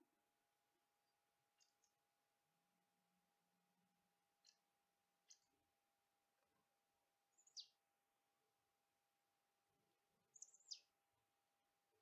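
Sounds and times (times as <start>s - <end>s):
small songbird calling: 5.2s - 5.6s, 7.3s - 7.8s, 10.2s - 11.0s.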